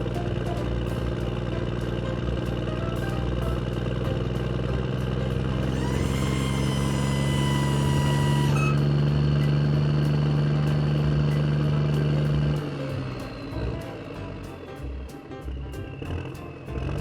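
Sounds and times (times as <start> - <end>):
vehicle engine drone: 0.0 - 15.0
high whine: 5.6 - 12.2.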